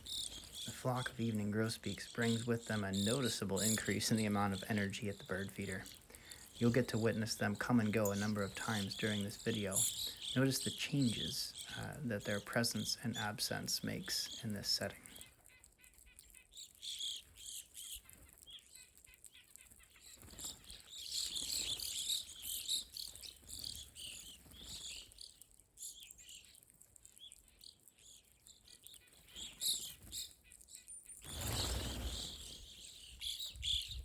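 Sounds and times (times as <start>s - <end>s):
birds chirping at a feeder: 0.0s - 34.0s.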